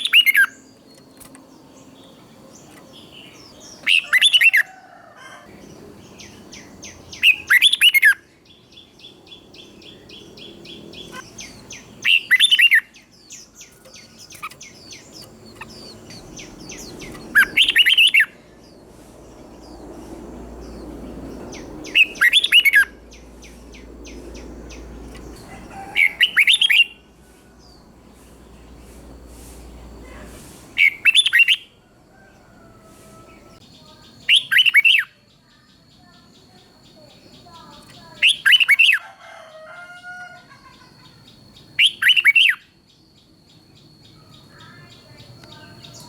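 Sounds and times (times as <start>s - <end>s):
bird singing loud phrases: 0.0s - 4.7s, 5.5s - 31.8s, 33.3s - 46.0s
faint rapid bird chirping: 5.5s - 38.9s.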